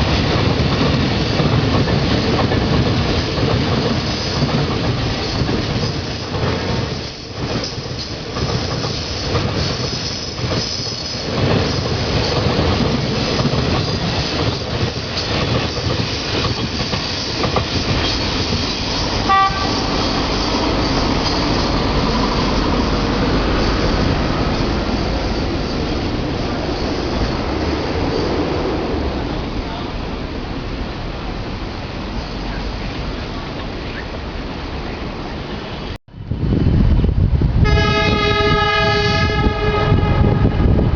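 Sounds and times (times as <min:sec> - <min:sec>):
train wheels clattering on rails: 0:00.0 - 0:29.4
high train horn toot: 0:19.1 - 0:20.2, 0:37.6 - 0:40.9.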